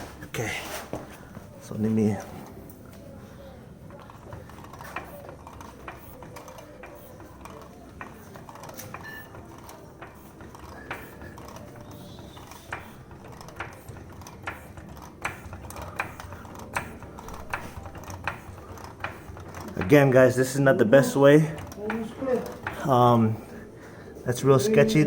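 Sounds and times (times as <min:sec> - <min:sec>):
lifting gear clicking: 0:03.9 - 0:23.2.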